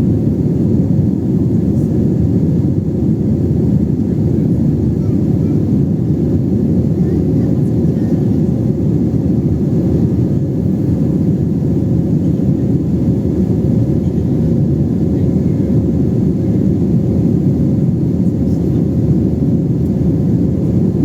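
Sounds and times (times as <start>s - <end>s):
jet engine and airflow rumble: 0.0s - 21.0s.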